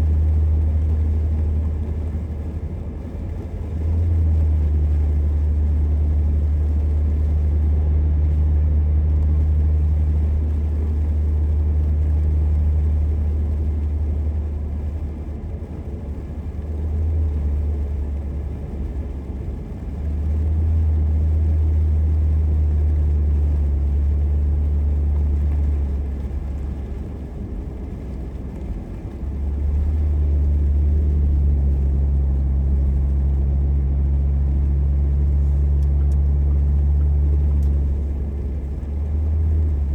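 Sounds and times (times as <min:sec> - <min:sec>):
car engine rumble: 0:00.0 - 0:39.9
tyres on road: 0:00.0 - 0:39.9.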